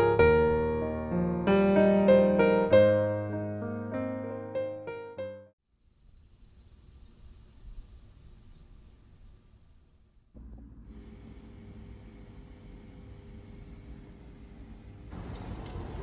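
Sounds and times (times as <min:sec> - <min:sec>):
high-pitched whine: 0:06.0 - 0:10.3.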